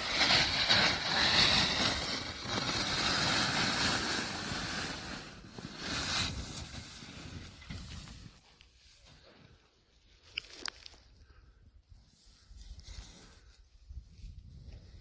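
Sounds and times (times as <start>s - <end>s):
snowboard carving through snow: 0.0s - 8.5s.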